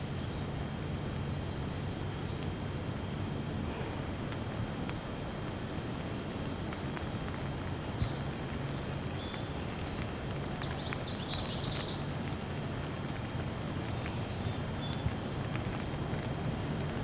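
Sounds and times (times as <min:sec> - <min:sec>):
steady gentle rain: 0:00.0 - 0:17.0
birds chirping: 0:07.4 - 0:12.2.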